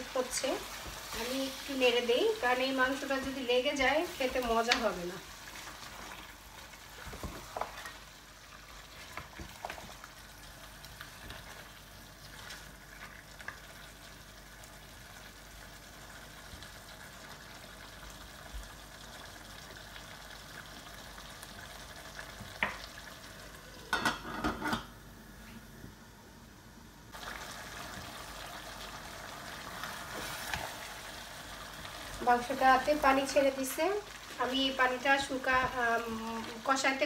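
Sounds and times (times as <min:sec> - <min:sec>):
curry sizzling in a pot: 0:00.0 - 0:25.0, 0:27.1 - 0:37.0
metal lid clattering on pot: 0:23.9 - 0:24.9.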